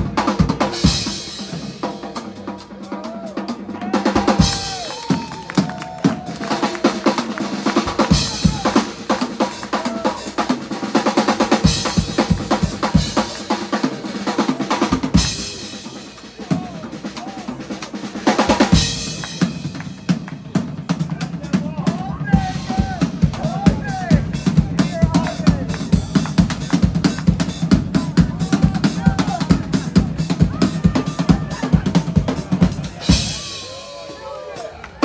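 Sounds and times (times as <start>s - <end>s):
bass drum and snare strokes: 6.1s - 33.5s.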